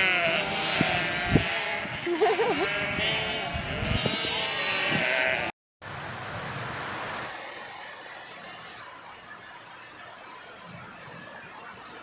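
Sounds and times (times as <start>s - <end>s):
sheep bleating: 0.0s - 5.5s.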